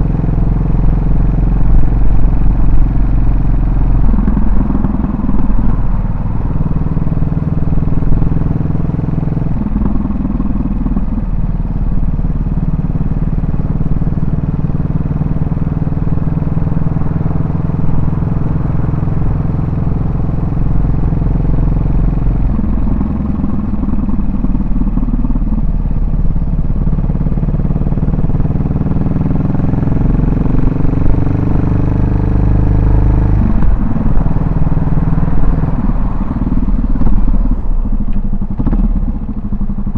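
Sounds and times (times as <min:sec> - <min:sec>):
motorcycle engine thumping: 0:03.9 - 0:06.4.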